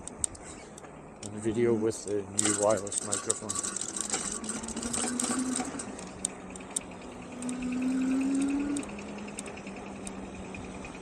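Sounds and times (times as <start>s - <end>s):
electric bike motor whining: 3.8s - 11.0s
sharp clicks: 3.9s - 10.2s.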